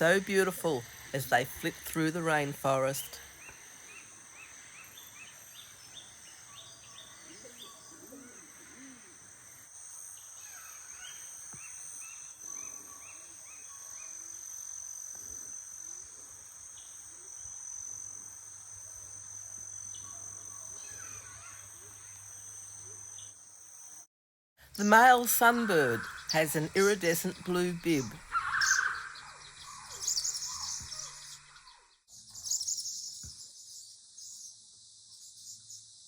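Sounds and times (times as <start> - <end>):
birds chirping: 0.0 - 9.5, 24.7 - 33.7
high-pitched insect drone: 0.0 - 24.1, 24.8 - 31.5.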